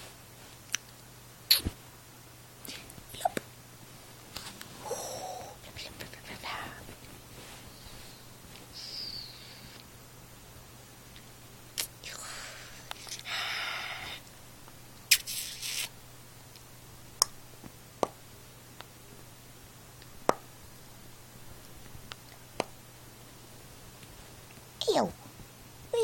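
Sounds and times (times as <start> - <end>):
steady low hum: 0.0 - 15.3, 15.9 - 26.0
cats rustling and scratching: 4.0 - 4.8, 5.9 - 8.7.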